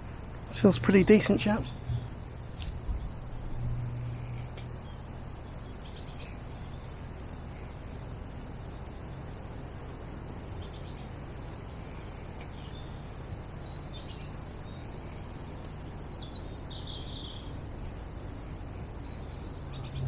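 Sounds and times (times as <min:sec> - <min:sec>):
small birds chirping: 0:00.4 - 0:20.0.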